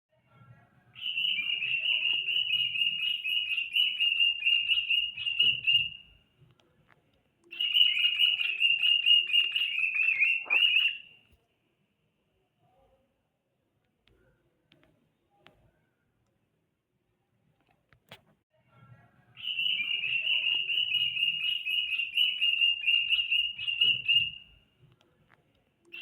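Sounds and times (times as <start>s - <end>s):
cockatiel whistling: 1.0s - 6.1s, 7.5s - 11.2s, 19.4s - 24.6s.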